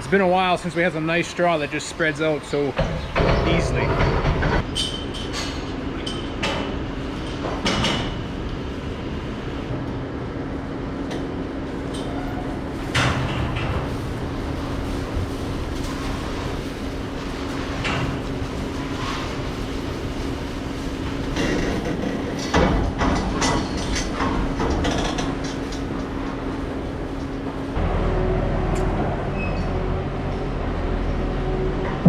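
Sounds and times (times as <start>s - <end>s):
sharp clattering bursts: 12.8s - 27.7s.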